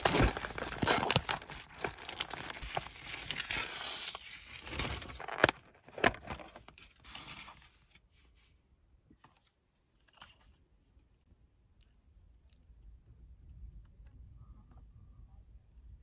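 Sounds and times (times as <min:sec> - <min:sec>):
plastic film crinkling and tearing: 0:00.0 - 0:07.3.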